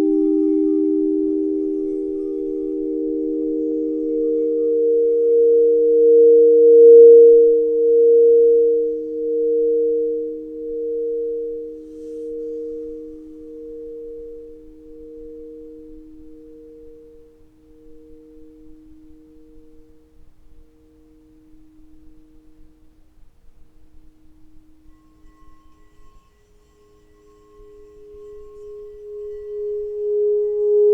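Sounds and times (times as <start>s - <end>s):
sustained ringing chord: 0.0s - 22.4s, 24.8s - 30.9s
faint rustle: 11.4s - 30.9s.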